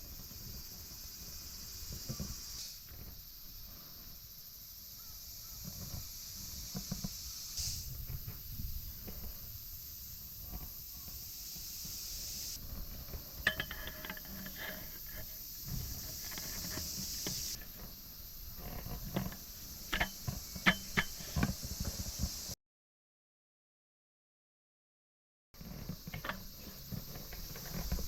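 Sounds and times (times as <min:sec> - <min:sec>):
steady high hiss: 0:00.0 - 0:22.6, 0:25.6 - 0:28.0
metal table parts clinking: 0:13.4 - 0:15.3, 0:19.2 - 0:21.6.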